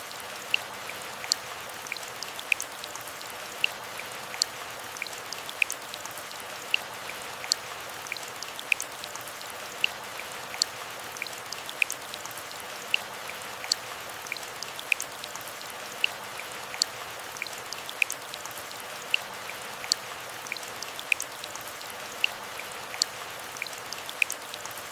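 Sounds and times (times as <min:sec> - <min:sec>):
gentle rain hiss: 0:00.0 - 0:24.9.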